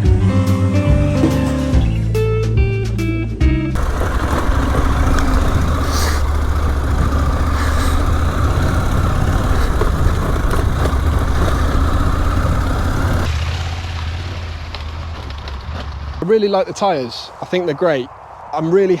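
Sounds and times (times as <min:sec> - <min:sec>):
motorcycle engine droning: 0:03.8 - 0:13.4
road and wind noise: 0:03.8 - 0:19.0.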